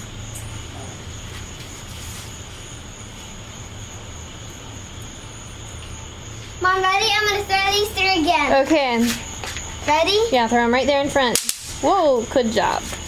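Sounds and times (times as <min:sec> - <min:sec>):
insects and frogs droning: 0:00.0 - 0:13.0.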